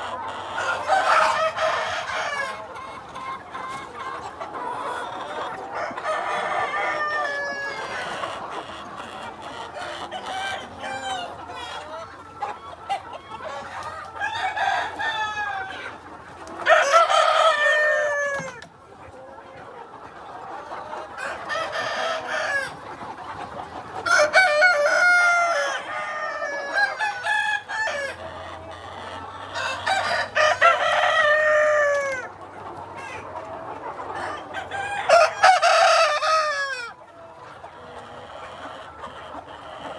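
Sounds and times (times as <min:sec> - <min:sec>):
roosters crowing: 0:00.0 - 0:03.0, 0:05.6 - 0:08.4, 0:09.9 - 0:11.6, 0:13.8 - 0:18.7, 0:21.2 - 0:22.8, 0:24.0 - 0:28.2, 0:29.5 - 0:32.3, 0:34.2 - 0:37.0
hens clucking: 0:00.0 - 0:39.9.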